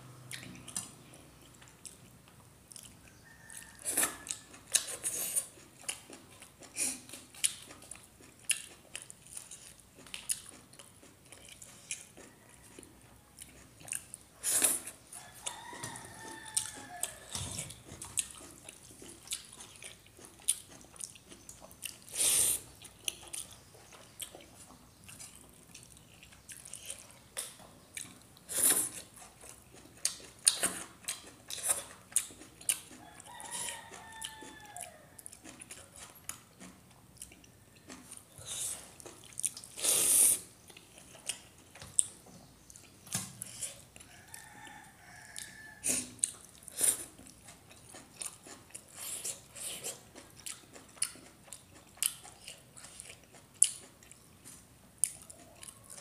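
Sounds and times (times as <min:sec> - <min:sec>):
chewing and wet mouth clicks: 0:00.2 - 0:56.0
rooster crowing: 0:03.2 - 0:04.6, 0:15.2 - 0:17.7, 0:33.0 - 0:35.4, 0:44.0 - 0:46.0.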